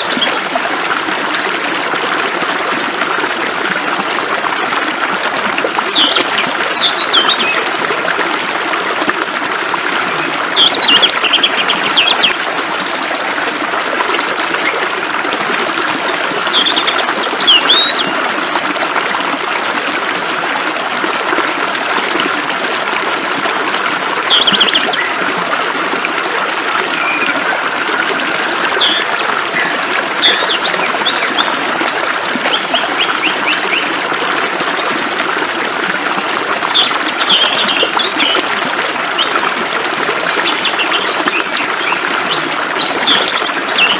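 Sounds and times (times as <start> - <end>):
songbirds chirping: 26.9 - 31.6.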